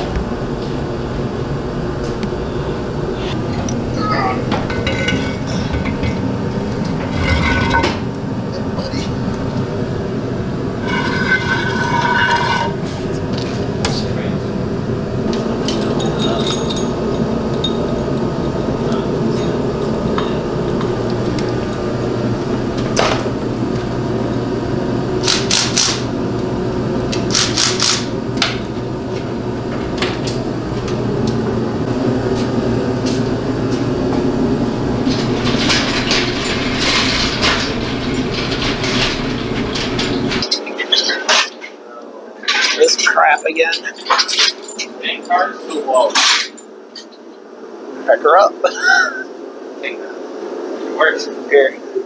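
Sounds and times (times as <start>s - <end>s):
steady mechanical hum: 0.0s - 52.0s
short clattering bursts: 27.1s - 31.5s, 32.4s - 40.4s.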